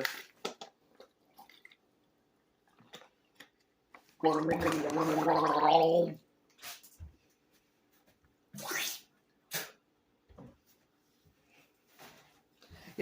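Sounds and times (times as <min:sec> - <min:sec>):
person gargling water: 0:04.2 - 0:06.2.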